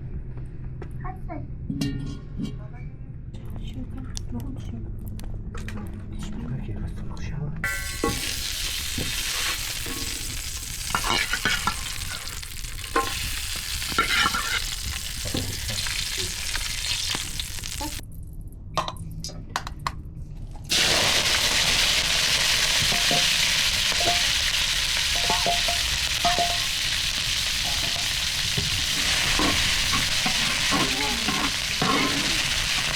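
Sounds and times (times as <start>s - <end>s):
food sizzling in frying: 7.6s - 18.0s, 20.7s - 32.9s
utensil knocking while stirring: 25.2s - 26.7s.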